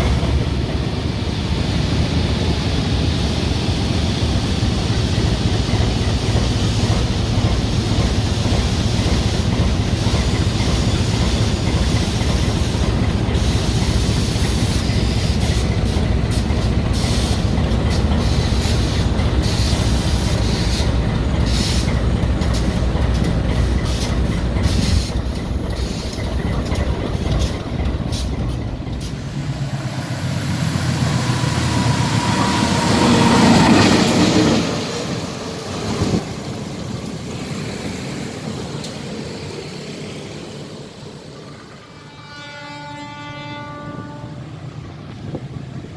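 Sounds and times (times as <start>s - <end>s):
locomotive engine rumble: 0.0s - 45.9s
wheels clicking over rail joints: 5.4s - 29.4s.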